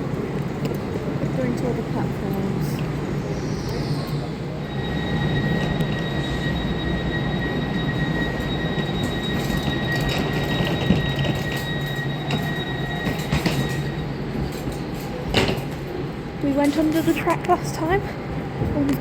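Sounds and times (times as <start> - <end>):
train low rumble: 0.0 - 19.0
high whine: 4.6 - 14.7.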